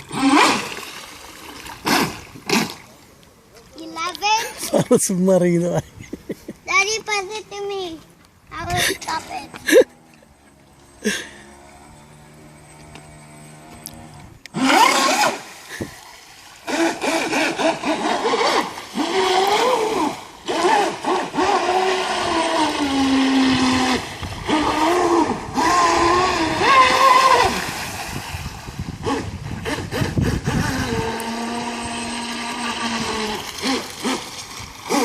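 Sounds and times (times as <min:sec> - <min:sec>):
electric boat motor whining: 0:00.0 - 0:02.8, 0:08.7 - 0:35.0.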